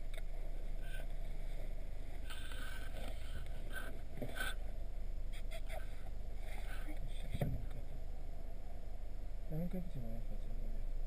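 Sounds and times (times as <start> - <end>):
faint rustles: 0.0 - 8.6.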